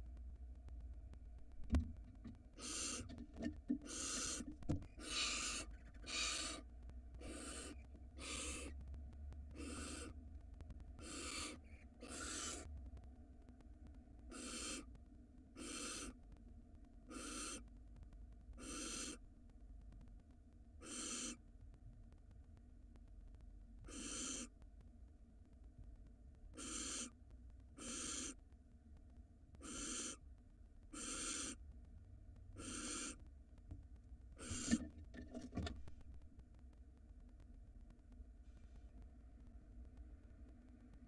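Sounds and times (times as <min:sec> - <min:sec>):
owls hissing screeches: 0:02.6 - 0:03.1, 0:03.8 - 0:06.6, 0:07.2 - 0:08.8, 0:09.6 - 0:10.2, 0:11.0 - 0:12.7, 0:14.3 - 0:14.9, 0:15.6 - 0:16.2, 0:17.1 - 0:17.6, 0:18.6 - 0:19.2, 0:20.8 - 0:21.4, 0:23.9 - 0:24.5, 0:26.6 - 0:27.1, 0:27.8 - 0:28.4, 0:29.6 - 0:30.2, 0:31.0 - 0:31.6, 0:32.6 - 0:33.2, 0:34.4 - 0:34.9.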